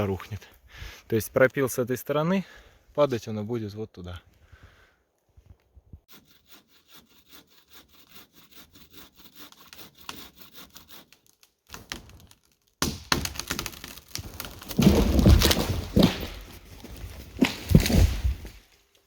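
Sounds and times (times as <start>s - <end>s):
bow saw cutting wood: 6.1s - 12.2s
wood knocking and cracking: 11.4s - 18.6s.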